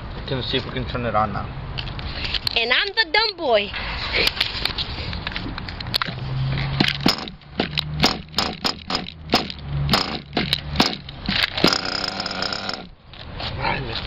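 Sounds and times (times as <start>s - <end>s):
sharp clicks and rattles: 4.2s - 6.2s, 6.8s - 13.3s
model engine starter bursts: 11.6s - 12.9s.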